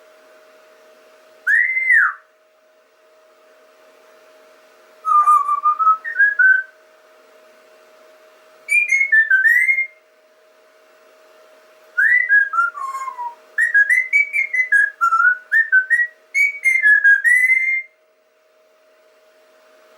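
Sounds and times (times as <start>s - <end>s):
faint steady hum: 0.0s - 19.9s
person whistling: 12.0s - 16.1s.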